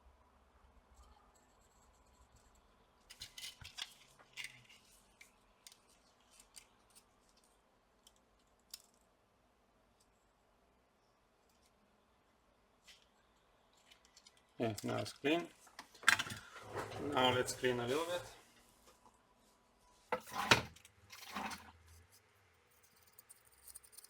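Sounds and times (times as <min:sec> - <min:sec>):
hand tools scraping: 0:20.2 - 0:21.8.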